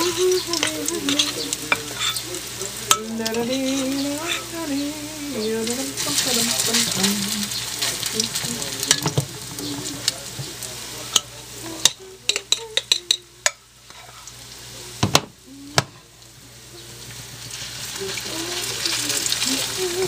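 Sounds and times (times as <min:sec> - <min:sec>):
patties sizzling in oil: 0:00.0 - 0:20.0
sharp clicks and knocks in pan: 0:06.2 - 0:14.4.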